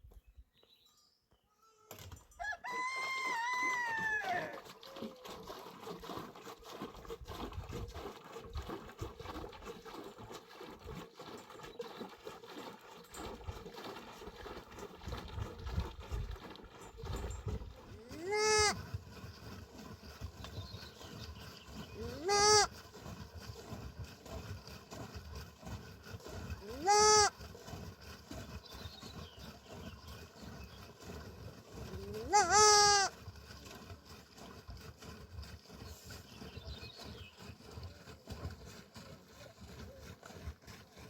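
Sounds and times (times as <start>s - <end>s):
rooster crowing: 2.4s - 4.6s
chickens calling: 22.0s - 22.7s, 26.6s - 27.3s, 32.0s - 33.1s.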